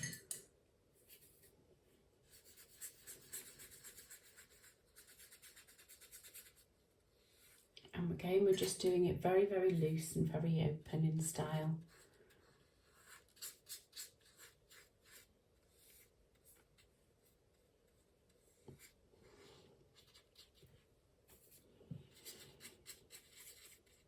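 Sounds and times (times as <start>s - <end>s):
paintbrush strokes on paper: 1.0s - 1.5s, 2.2s - 7.7s, 11.8s - 24.0s.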